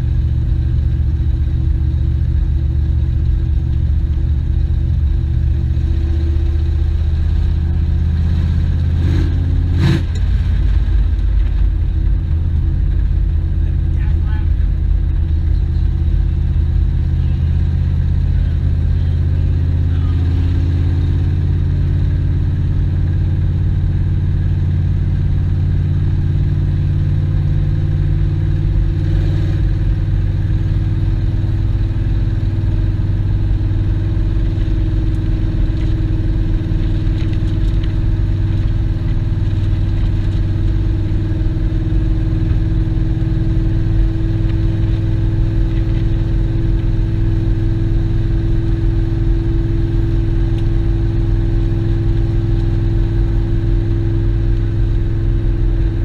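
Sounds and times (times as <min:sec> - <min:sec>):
car engine droning: 0:00.0 - 0:56.0.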